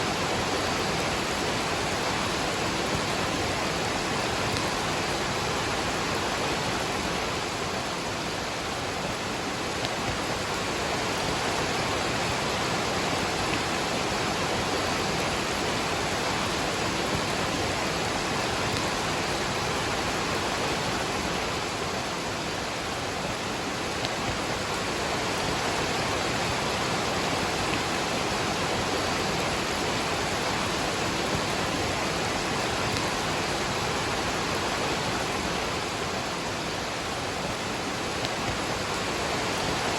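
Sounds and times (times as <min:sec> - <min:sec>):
rain falling: 0:00.0 - 0:39.9
waterfall rushing: 0:00.0 - 0:39.9.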